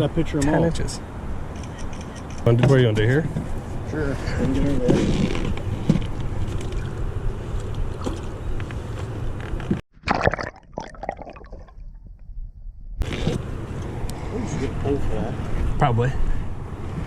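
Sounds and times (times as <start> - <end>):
water splashing and gurgling: 9.9 - 12.3
low rumble: 11.6 - 13.1.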